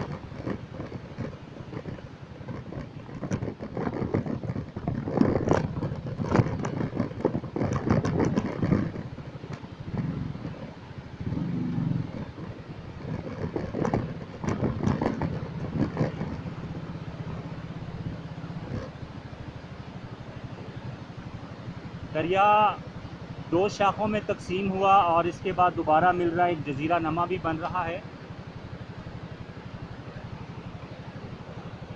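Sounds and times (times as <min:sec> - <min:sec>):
clattering knocks from bumps: 0:00.0 - 0:11.4, 0:12.0 - 0:19.3
motorcycle engine running: 0:00.0 - 0:31.9.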